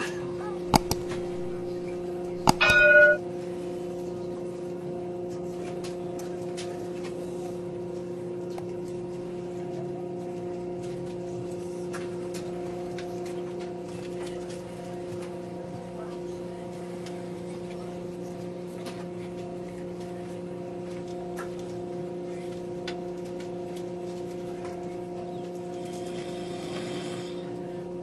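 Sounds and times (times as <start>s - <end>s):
steady electrical hum: 0.0s - 5.3s.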